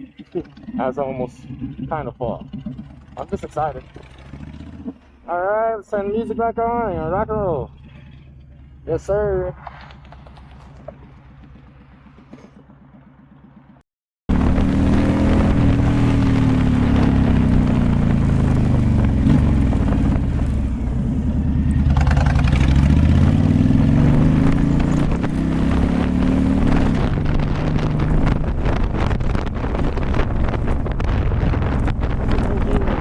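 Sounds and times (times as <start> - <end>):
motorcycle engine idling: 0.0 - 5.3, 6.0 - 13.8, 18.1 - 23.1
motorcycle accelerating and changing gear: 0.0 - 5.4, 6.0 - 33.0.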